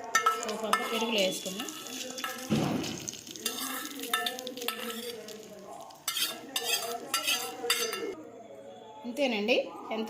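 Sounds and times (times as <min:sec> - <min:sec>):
spoon clinking against bowl: 0:00.0 - 0:02.5, 0:03.4 - 0:05.3, 0:06.0 - 0:08.2
spoon scraping a bowl: 0:00.1 - 0:02.5, 0:03.4 - 0:08.2.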